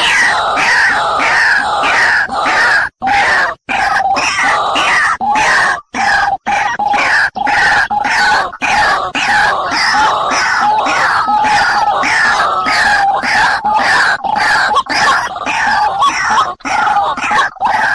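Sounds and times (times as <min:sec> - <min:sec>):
harsh raspy bird calls: 0:00.0 - 0:17.9.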